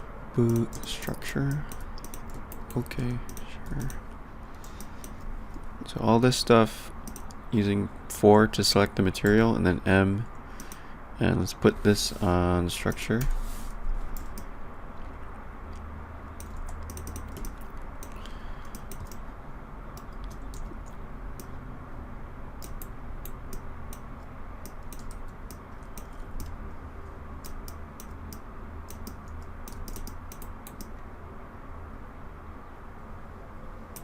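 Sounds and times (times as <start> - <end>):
steady low hum: 0.0 - 34.0
computer keyboard typing: 0.4 - 4.0, 7.0 - 7.4, 14.1 - 15.2, 16.4 - 19.2, 20.0 - 21.6, 22.6 - 26.6, 27.4 - 31.0.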